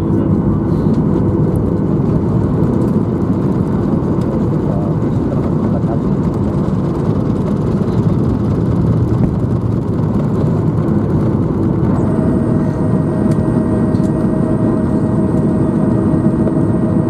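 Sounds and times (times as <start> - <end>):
jet engines idling: 0.0 - 17.0
thin whine: 11.8 - 17.0.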